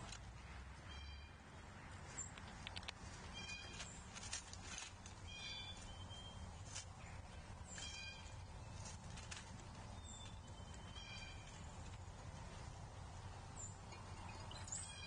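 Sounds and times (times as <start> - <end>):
low steady hum: 0.0 - 15.0
harsh bird calls: 5.2 - 9.0, 9.8 - 12.0.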